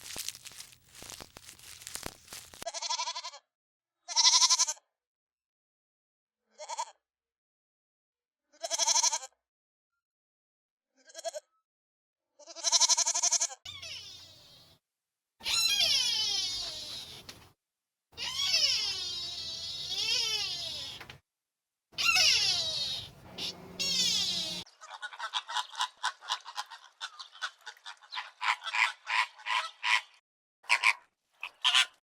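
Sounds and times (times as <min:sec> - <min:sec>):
faint rustle: 0:00.0 - 0:02.6, 0:22.0 - 0:24.6
crinkling crunching noise: 0:00.0 - 0:02.7, 0:22.9 - 0:24.6
bleating animal calls: 0:13.7 - 0:14.8, 0:15.4 - 0:17.5, 0:18.2 - 0:21.2, 0:22.0 - 0:24.6.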